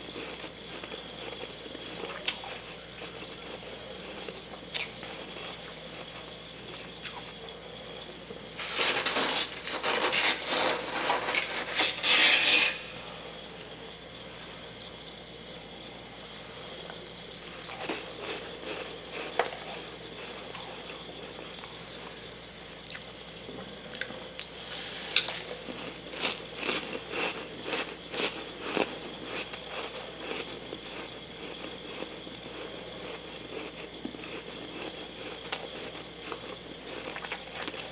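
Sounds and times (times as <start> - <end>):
faint steady hum: 0.0 - 37.9
freezer frost crunching and scraping: 8.6 - 13.2.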